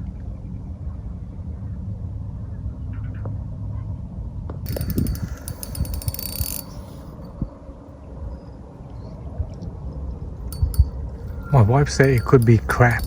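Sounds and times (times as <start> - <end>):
wind rumble on microphone: 0.0 - 13.0
fishing reel ratchet clicking: 4.7 - 7.2, 10.5 - 13.0.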